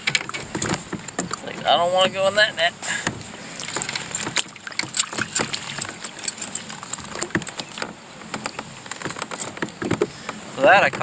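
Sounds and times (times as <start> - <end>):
fish flopping in landing net: 3.5 - 7.9.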